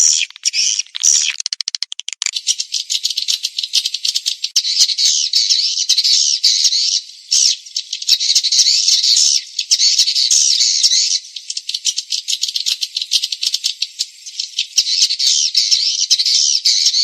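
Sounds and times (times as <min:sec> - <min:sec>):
high buzzy twittering: 0:00.0 - 0:03.6
rapid clicking chirps: 0:00.0 - 0:06.6, 0:07.4 - 0:15.3.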